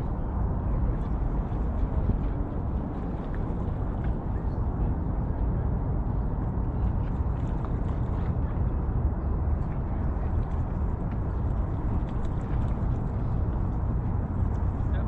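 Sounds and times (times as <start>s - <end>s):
faint outdoor ambience: 0.0s - 15.0s
wind buffeting microphone: 0.0s - 15.0s.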